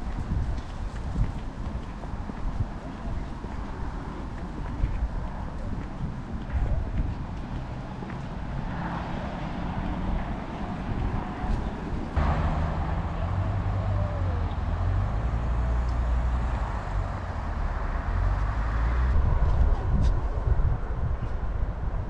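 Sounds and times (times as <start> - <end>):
rumble of passing traffic: 0.0 - 22.0.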